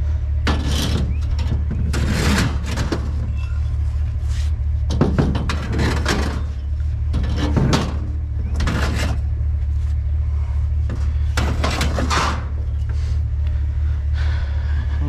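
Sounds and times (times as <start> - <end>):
truck engine and road noise: 0.0 - 15.0
clattering rattles: 0.4 - 3.8, 4.8 - 9.4, 10.8 - 13.0.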